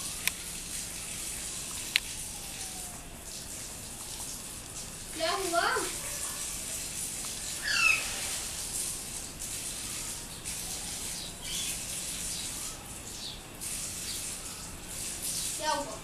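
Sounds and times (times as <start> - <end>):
steady background hiss: 0.0 - 16.0
parakeet squawking and chirping: 7.5 - 8.4.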